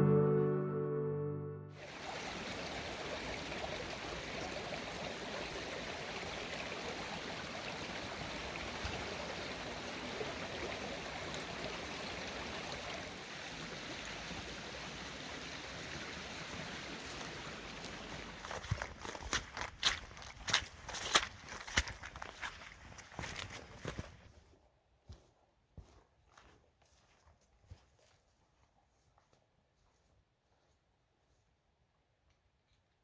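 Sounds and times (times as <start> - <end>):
stream rushing: 1.8 - 18.4.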